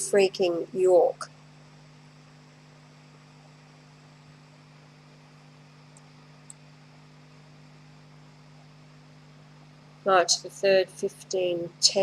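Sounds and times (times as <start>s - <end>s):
electrical hum and hiss: 0.0s - 12.0s
faint click: 5.9s - 6.6s.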